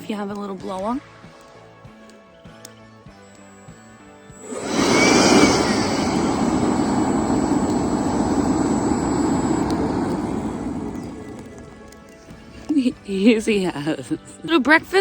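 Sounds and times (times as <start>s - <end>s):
air rushing into fire: 4.4s - 12.7s
handheld blower motor whining: 4.4s - 12.7s.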